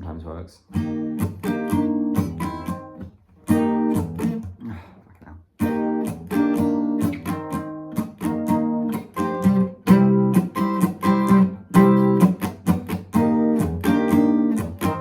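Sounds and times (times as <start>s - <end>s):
guitar strumming chords: 0.7s - 15.0s.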